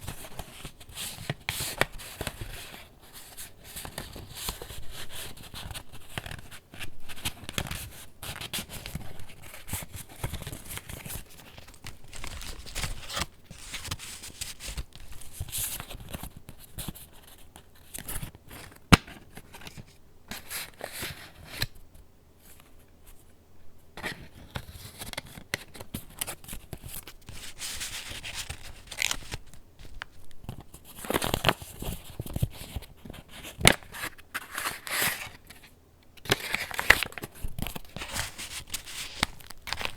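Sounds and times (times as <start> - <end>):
paper pages rustling: 3.2 - 17.4, 24.1 - 39.9.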